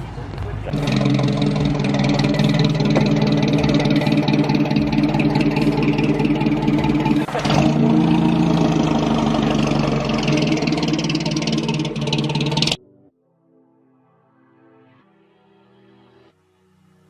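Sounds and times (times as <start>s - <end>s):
car engine running loudly: 0.0s - 12.8s.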